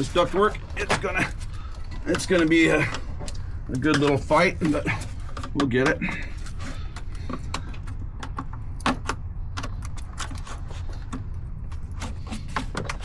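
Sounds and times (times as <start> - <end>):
steady low hum: 0.0 - 13.0
tools clicking and knocking: 1.7 - 10.4.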